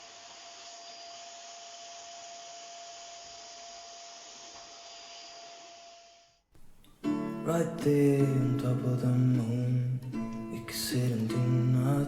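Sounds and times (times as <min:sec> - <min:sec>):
small motor whirring: 0:00.0 - 0:06.4.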